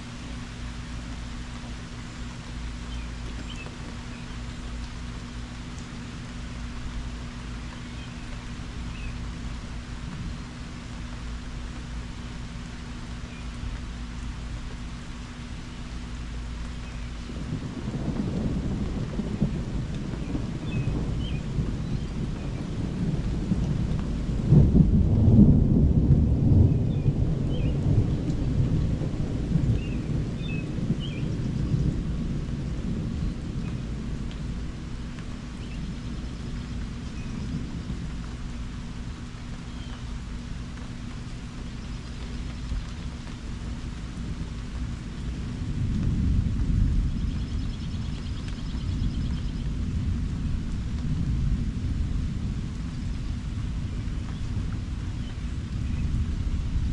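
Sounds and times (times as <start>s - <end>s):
light rain: 0.0s - 56.9s
rolling thunder: 17.2s - 39.1s, 41.8s - 56.9s.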